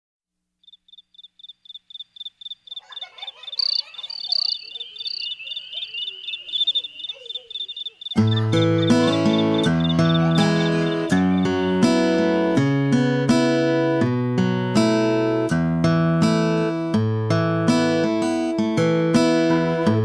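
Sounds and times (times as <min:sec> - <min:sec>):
insect trill: 0:00.6 - 0:12.6
crickets chirping: 0:00.6 - 0:12.9
acoustic guitar: 0:08.2 - 0:20.0.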